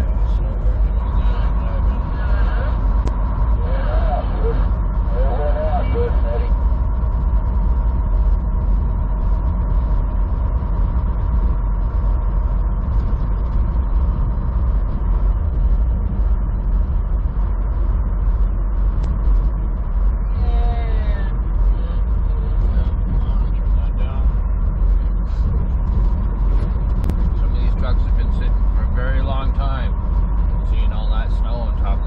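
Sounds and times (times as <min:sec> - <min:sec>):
road noise inside cab: 0:00.0 - 0:32.0
truck engine rumble: 0:00.0 - 0:32.0
faint voice: 0:03.6 - 0:06.5.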